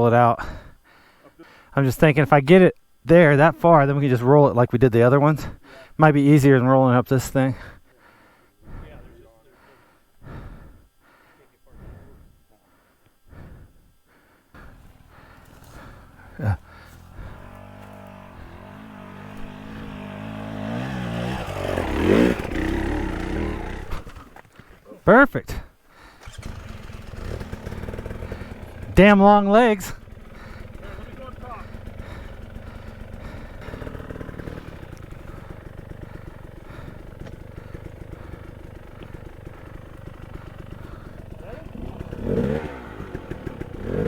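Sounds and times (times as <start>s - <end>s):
dirt bike engine revving: 14.6s - 24.4s, 26.0s - 44.0s
faint clicks: 32.2s - 41.2s.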